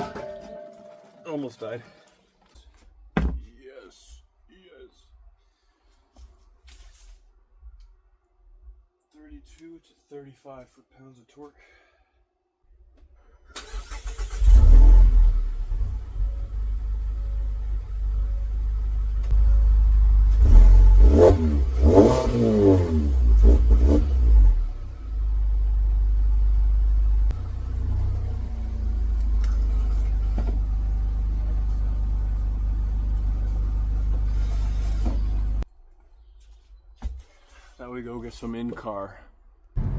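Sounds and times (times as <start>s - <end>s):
car engine revving and idling: 13.8s - 35.7s.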